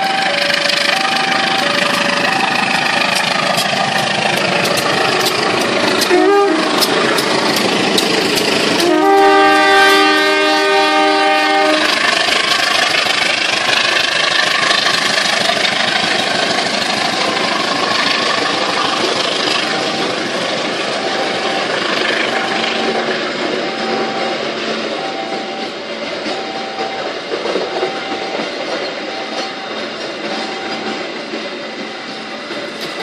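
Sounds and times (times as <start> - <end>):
train coaches rumbling on rails: 0.0 - 33.0
locomotive horn: 6.0 - 6.9, 8.8 - 12.0.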